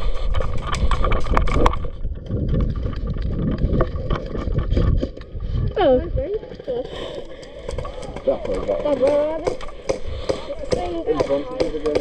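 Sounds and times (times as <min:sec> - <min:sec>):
wind buffeting microphone: 0:00.0 - 0:06.6
handling knocks and rattles: 0:07.4 - 0:12.0.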